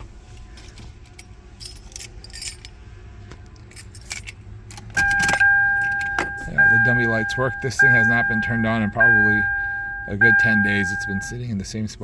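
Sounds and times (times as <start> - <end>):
low steady hum: 0.0 - 12.0
car keys jangling: 0.3 - 2.8, 3.5 - 7.1
key clicking in ignition: 3.6 - 7.1.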